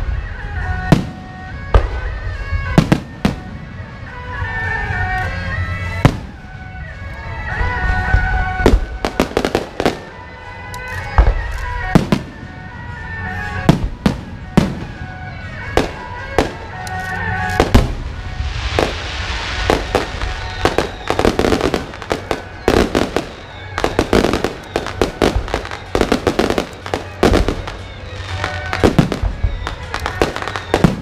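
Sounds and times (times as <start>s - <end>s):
firework shells bursting: 15.8s - 31.0s
crackling hiss: 16.0s - 31.0s.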